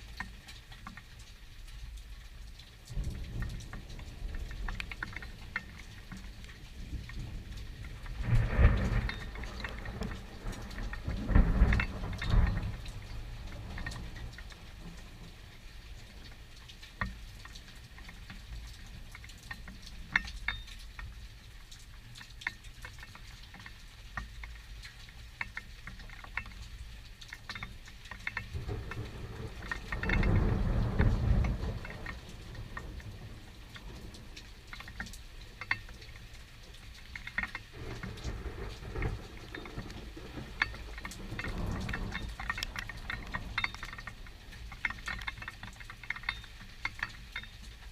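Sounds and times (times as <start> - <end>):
rain pattering: 0.0 - 47.9
low thunder rumble: 2.9 - 16.2, 28.4 - 34.8, 37.7 - 44.8.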